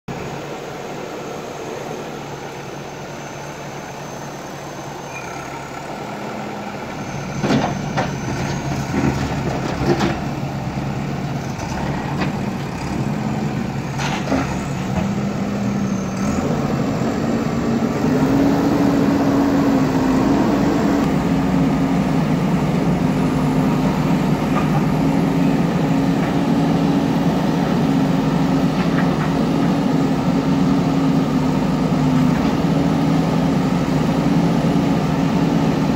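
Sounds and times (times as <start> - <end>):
earthmover diesel engine revving: 0.3 - 35.9.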